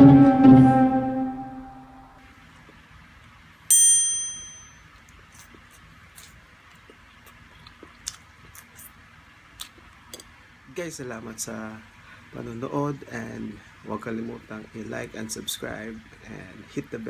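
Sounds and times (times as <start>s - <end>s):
bright metallic ding: 3.7s - 4.8s.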